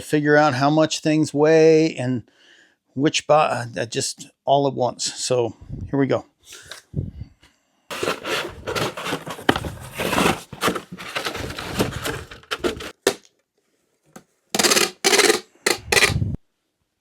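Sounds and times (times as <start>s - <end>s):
toy cars rattling: 10.2s - 13.2s, 14.6s - 16.2s.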